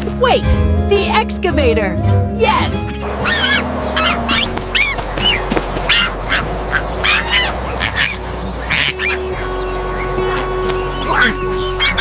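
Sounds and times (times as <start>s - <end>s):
duck quacking: 3.1s - 9.5s.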